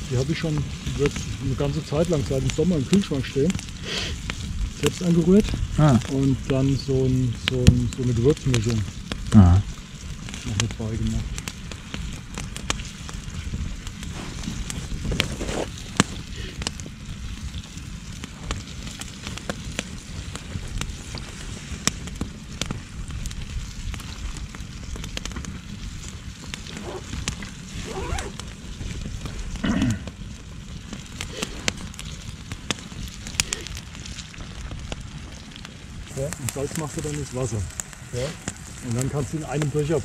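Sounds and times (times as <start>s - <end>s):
campfire crackling and popping: 0.0s - 40.0s
low rumble of burning: 0.0s - 40.0s.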